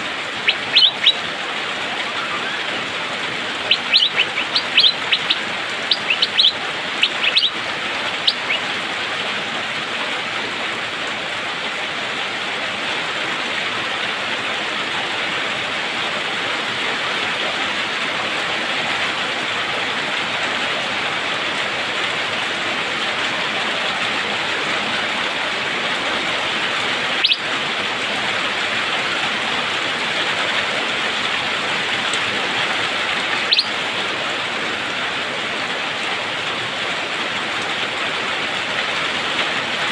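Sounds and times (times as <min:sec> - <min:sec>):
steady rain hiss: 0:00.0 - 0:39.9
bird chirping: 0:00.4 - 0:01.3, 0:03.6 - 0:08.7, 0:27.2 - 0:27.5, 0:33.2 - 0:33.8.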